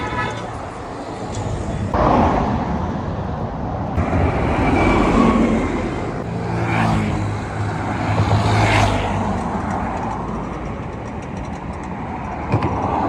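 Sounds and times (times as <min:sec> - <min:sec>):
road traffic noise: 0:00.0 - 0:13.0
vehicle engine humming: 0:03.9 - 0:12.2.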